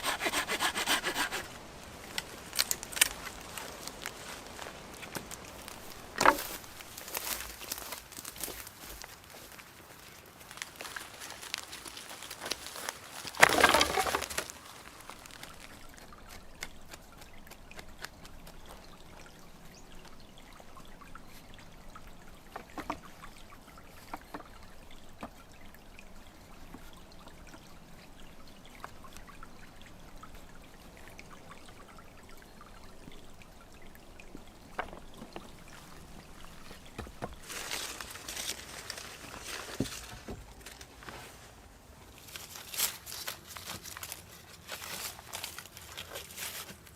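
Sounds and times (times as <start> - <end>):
water splashing: 0.0 - 19.3
water pouring and trickling: 0.0 - 46.9.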